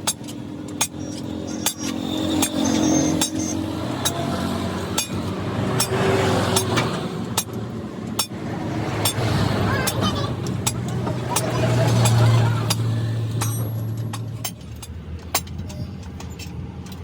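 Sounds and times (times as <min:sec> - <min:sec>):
hammer clinking on metal: 0:10.7 - 0:17.0.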